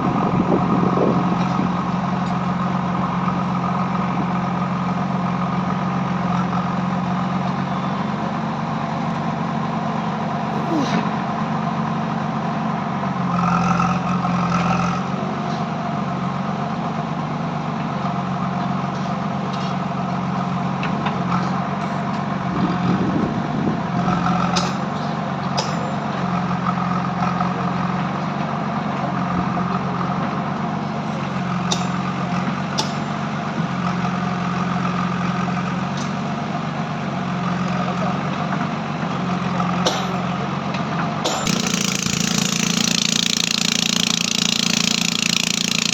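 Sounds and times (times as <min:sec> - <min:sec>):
engine running: 0:00.0 - 0:45.9
sharp metallic clicks: 0:41.3 - 0:45.9.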